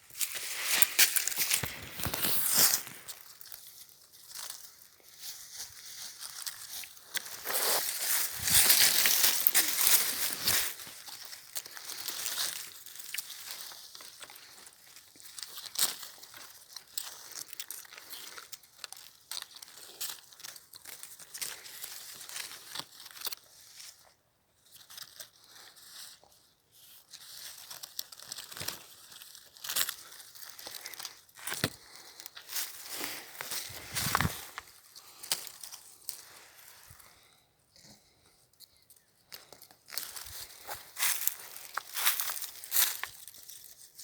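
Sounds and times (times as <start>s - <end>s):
footsteps crunching dry leaves: 0.0s - 18.4s, 27.2s - 37.0s, 39.9s - 44.0s.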